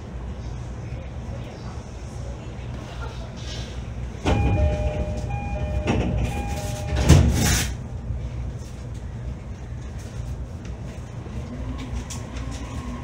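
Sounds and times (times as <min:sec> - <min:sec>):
short steady tones: 0:04.3 - 0:07.3.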